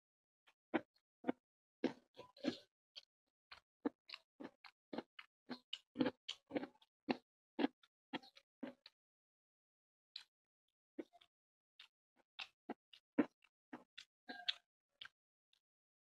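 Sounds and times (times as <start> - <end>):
wet chewing and lip-smacking: 1.8 - 8.9, 11.0 - 15.2.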